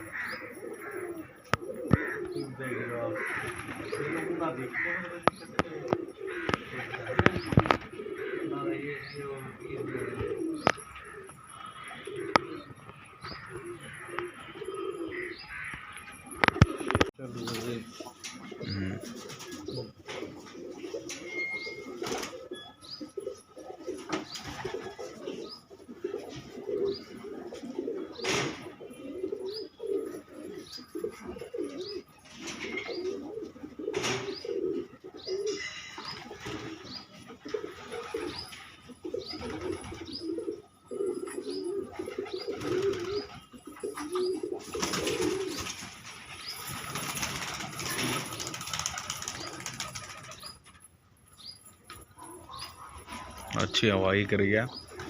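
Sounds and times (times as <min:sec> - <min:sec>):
pigeons cooing: 0:00.0 - 0:55.0
wings flapping: 0:03.4 - 0:04.3, 0:41.9 - 0:43.4, 0:44.6 - 0:50.8
faint high chirp: 0:21.1 - 0:23.4.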